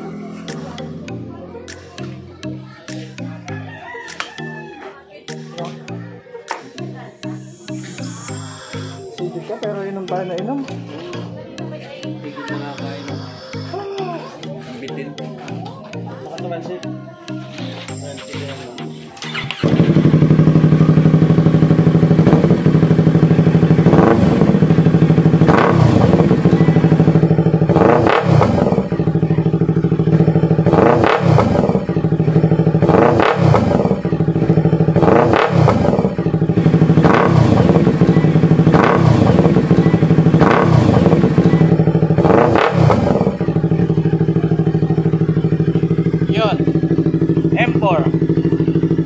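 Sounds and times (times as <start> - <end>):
motorcycle engine throttle blips: 19.2 - 49.0.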